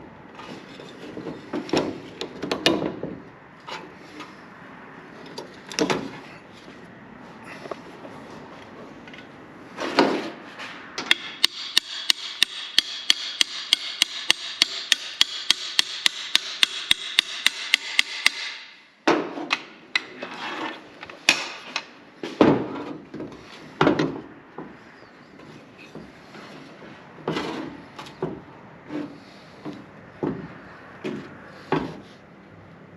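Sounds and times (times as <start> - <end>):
hammer tapping: 11.1 - 18.8
heavy knocks: 29.6 - 32.0.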